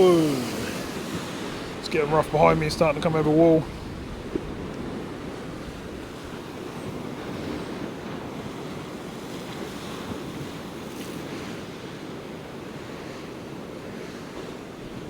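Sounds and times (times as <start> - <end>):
wind buffeting microphone: 0.0 - 11.5
surf surging against sea wall: 0.0 - 15.0.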